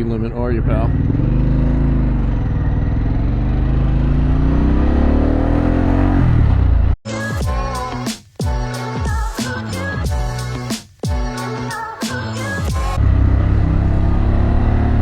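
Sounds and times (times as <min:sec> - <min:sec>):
motorcycle engine accelerating: 0:00.0 - 0:07.0, 0:12.8 - 0:15.0
music: 0:07.1 - 0:13.0.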